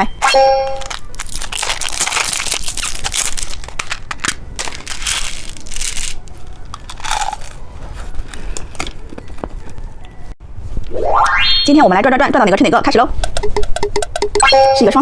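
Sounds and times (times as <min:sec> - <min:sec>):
plastic packaging crinkling: 0:00.8 - 0:09.8.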